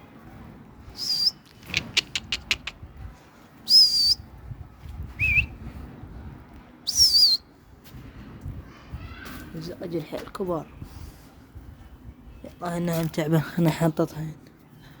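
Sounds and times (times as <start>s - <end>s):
man whistling high whistles: 1.0s - 1.4s, 3.7s - 4.2s, 5.2s - 5.6s, 6.9s - 7.4s.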